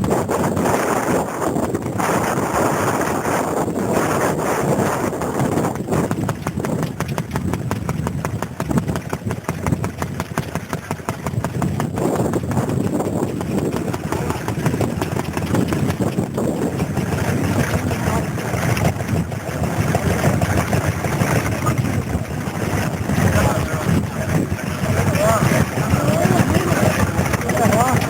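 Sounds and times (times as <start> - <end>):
stationary engine exhaust beat: 0.0 - 28.0
loud even noise: 13.6 - 28.0.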